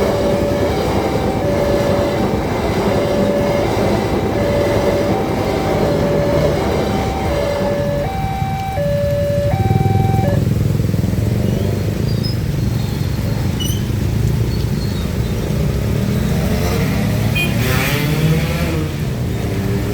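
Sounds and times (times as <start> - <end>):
level crossing two-tone alarm: 0.0 - 10.4
motorcycle and car engines rumbling: 0.0 - 19.9.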